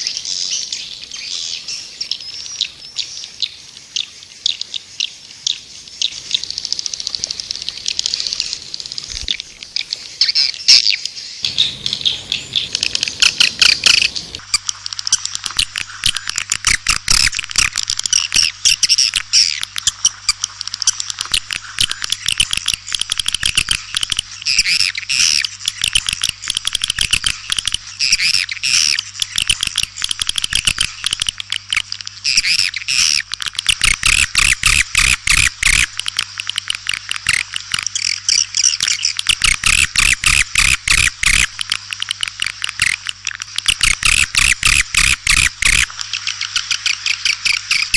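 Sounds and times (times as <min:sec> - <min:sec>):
steady low hum: 0:11.4 - 0:16.6
swiftlets twittering chirps: 0:11.4 - 0:17.3, 0:32.2 - 0:47.9.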